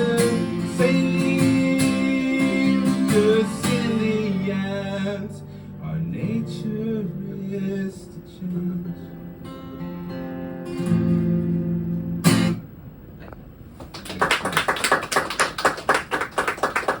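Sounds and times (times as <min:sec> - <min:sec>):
audience clapping: 0:13.8 - 0:17.0.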